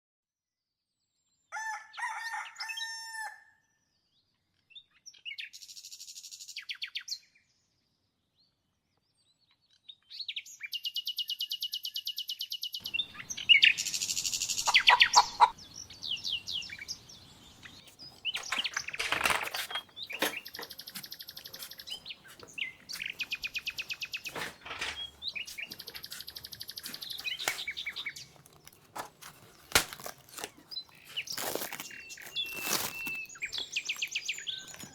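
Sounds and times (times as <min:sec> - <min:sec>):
rooster crowing: 0:01.6 - 0:03.4
faint outdoor background: 0:04.0 - 0:34.9
songbirds singing: 0:10.1 - 0:34.9.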